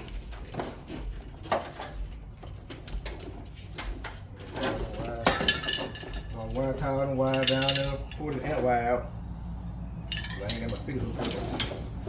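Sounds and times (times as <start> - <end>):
hands handling parts and wiring: 0.0 - 8.7.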